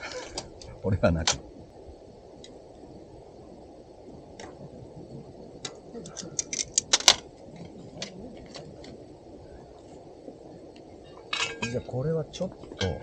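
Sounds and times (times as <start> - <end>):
steady low rush: 0.0 - 13.0
cookware clinking: 11.4 - 11.8.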